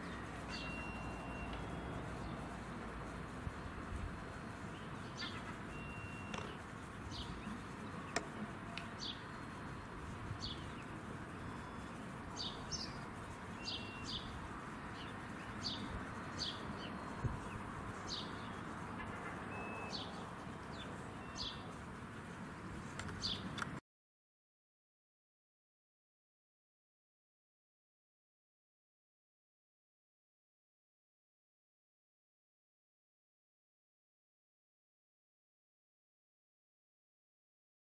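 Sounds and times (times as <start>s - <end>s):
small birds chirping: 0.0s - 23.8s
steady background noise: 0.0s - 23.8s
thin whistles: 0.5s - 2.1s, 5.7s - 6.4s.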